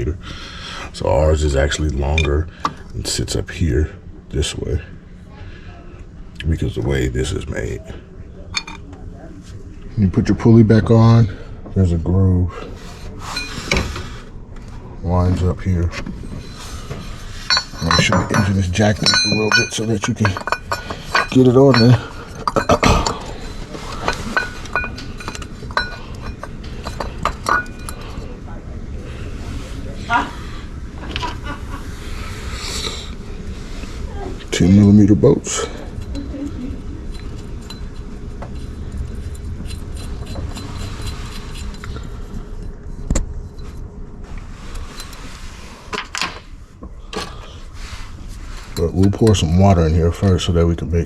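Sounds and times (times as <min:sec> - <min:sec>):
metal tools clinking: 0:01.6 - 0:02.4, 0:08.5 - 0:08.9, 0:13.2 - 0:13.8, 0:16.2 - 0:28.5, 0:34.5 - 0:42.8, 0:44.7 - 0:45.3, 0:48.6 - 0:50.4.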